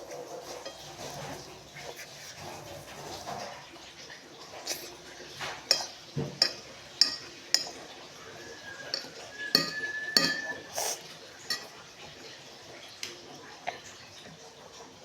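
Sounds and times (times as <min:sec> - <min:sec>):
cutlery clinking on a plate: 0:00.4 - 0:01.5, 0:04.7 - 0:11.9.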